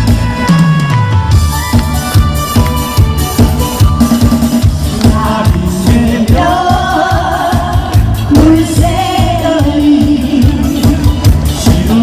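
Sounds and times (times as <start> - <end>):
band with driving drum beat: 0.0 - 12.0
person singing with vibrato: 4.8 - 12.0.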